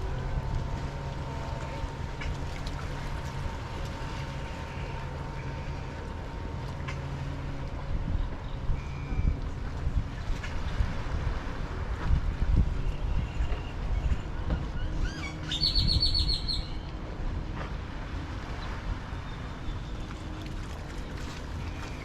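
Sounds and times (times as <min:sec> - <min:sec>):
wind and surf rumble: 0:00.0 - 0:22.0
bird calling: 0:14.8 - 0:16.9.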